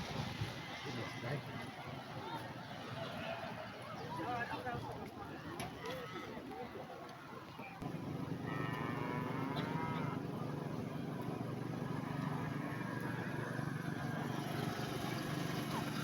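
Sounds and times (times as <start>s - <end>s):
steady low hum: 7.8s - 15.7s
cow mooing: 8.2s - 10.5s, 11.8s - 13.5s.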